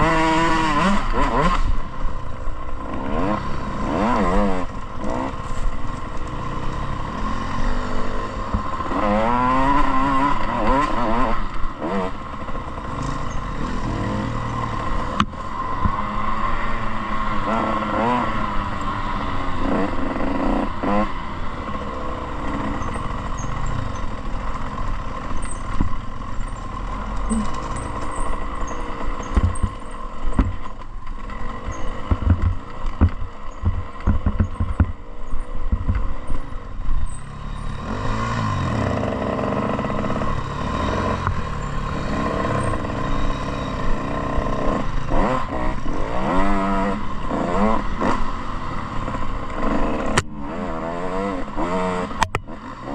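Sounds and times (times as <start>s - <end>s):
dirt bike engine revving: 0.0s - 30.6s, 31.2s - 52.9s
sharp clattering knocks: 31.9s - 35.0s.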